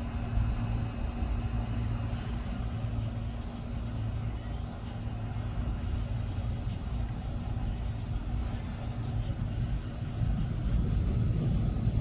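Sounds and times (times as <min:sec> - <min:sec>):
thunder rumbling: 0:09.6 - 0:12.0.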